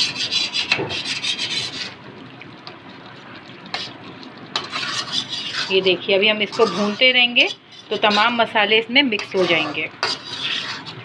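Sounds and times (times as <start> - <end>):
spatula scraping a pan: 0.0 - 2.0, 3.7 - 11.0.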